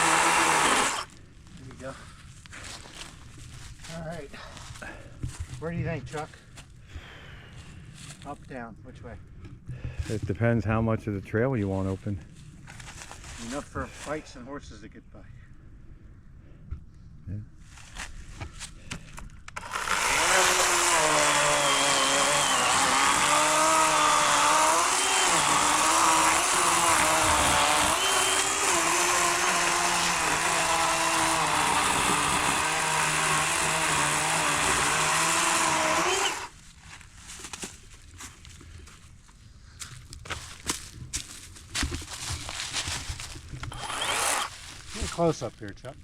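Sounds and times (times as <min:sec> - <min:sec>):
electric chainsaw cutting log: 0:00.0 - 0:01.1, 0:19.6 - 0:36.6, 0:43.7 - 0:44.6.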